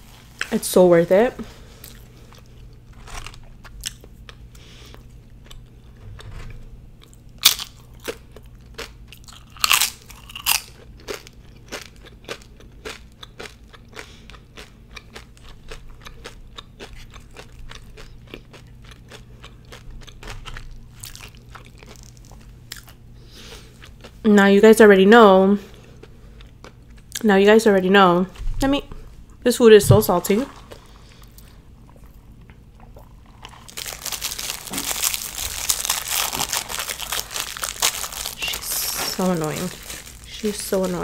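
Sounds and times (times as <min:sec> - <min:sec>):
crunchy chewing: 0:07.0 - 0:24.2, 0:30.5 - 0:41.0.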